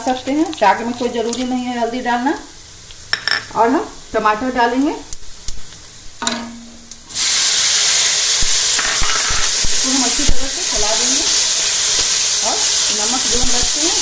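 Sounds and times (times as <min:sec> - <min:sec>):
loud sizzle of frying: 0:00.0 - 0:14.0
sharp knock: 0:06.2 - 0:06.9.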